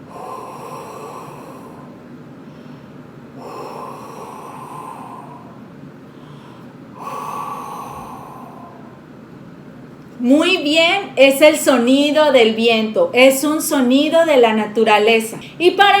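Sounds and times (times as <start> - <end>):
breath blown through cardboard tube: 0.0 - 9.2.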